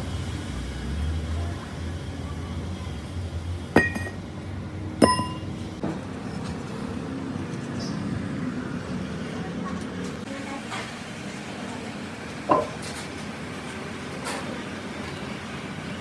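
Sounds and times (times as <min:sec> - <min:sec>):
metal-on-metal strikes ringing: 0:03.8 - 0:04.2, 0:05.0 - 0:05.5.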